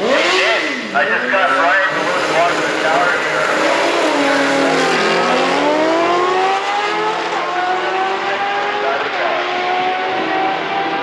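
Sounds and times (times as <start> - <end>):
racing engine at full throttle: 0.0 - 11.0.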